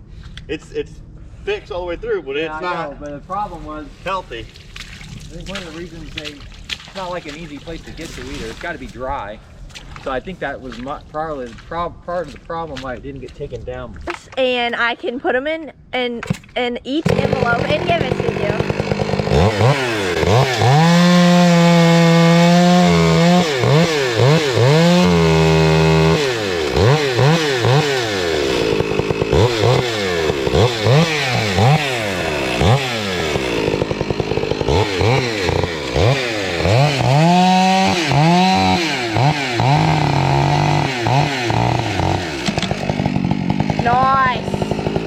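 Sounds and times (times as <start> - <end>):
man talking: 0.5 - 4.5, 5.3 - 14.1
chainsaw revving: 17.0 - 45.0.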